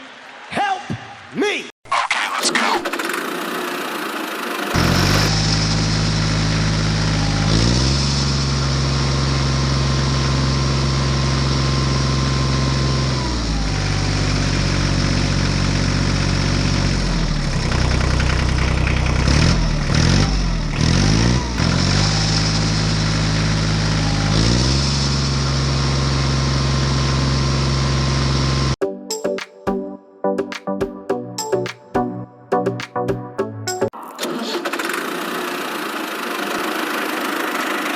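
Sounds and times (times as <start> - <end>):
small engine running: 2.6 - 28.8, 34.1 - 37.9.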